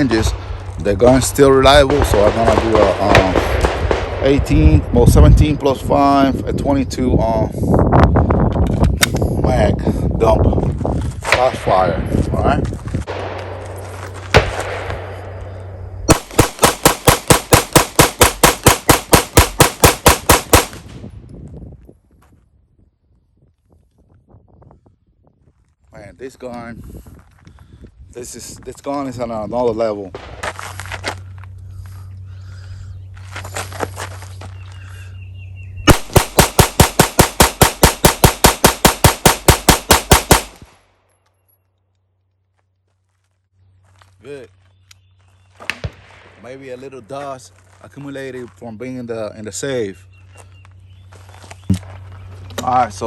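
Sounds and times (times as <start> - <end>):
pistol fired rapidly: 1.8 - 4.3, 16.1 - 20.9, 35.9 - 40.7
single pistol shot: 14.3 - 15.4, 35.9 - 40.8.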